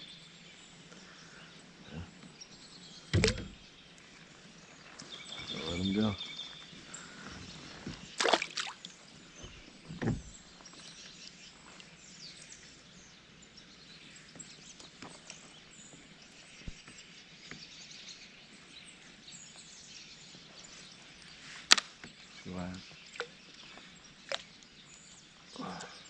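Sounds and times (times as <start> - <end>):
small birds chirping: 0.0 - 26.0
low thump: 3.1 - 3.6, 9.4 - 10.3.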